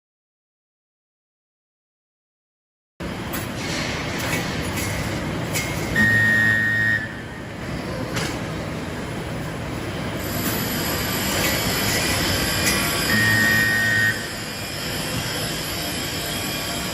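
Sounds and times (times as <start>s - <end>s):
welding machine running: 3.0s - 16.9s
loud electric buzz: 10.2s - 16.9s.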